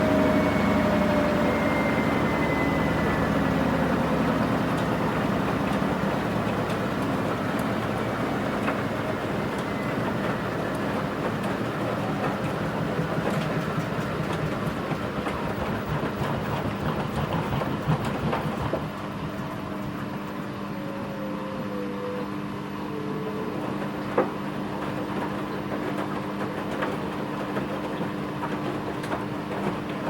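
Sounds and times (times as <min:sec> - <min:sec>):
washing machine drum rattling: 0:00.0 - 0:19.0
motor hum with falling whine: 0:00.0 - 0:30.0.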